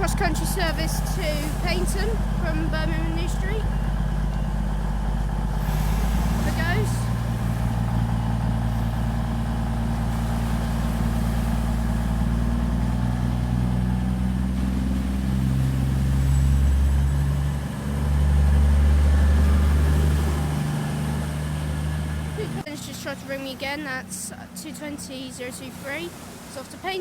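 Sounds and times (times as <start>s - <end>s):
diesel train engine drone: 0.0s - 27.0s.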